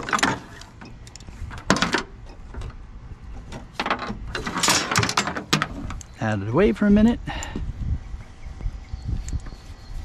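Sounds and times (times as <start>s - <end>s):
scrap items knocking and clunking: 3.4s - 6.0s.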